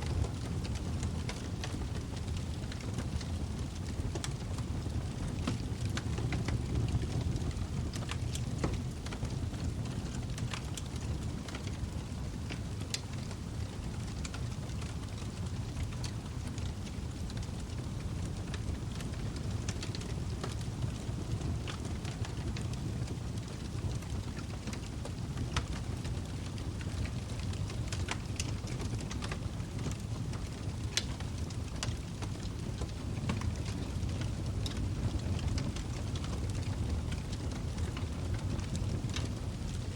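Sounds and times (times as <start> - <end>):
fire flames rumbling: 0.0 - 39.9
wood crackling and popping: 0.0 - 39.9.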